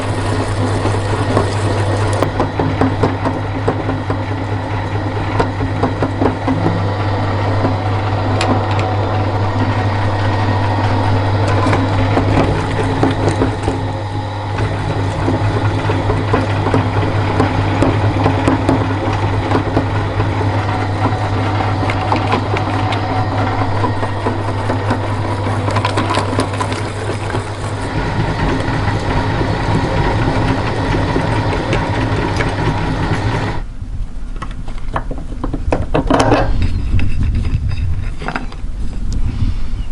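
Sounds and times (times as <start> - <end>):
meat grinder motor hum: 0.0 - 33.7.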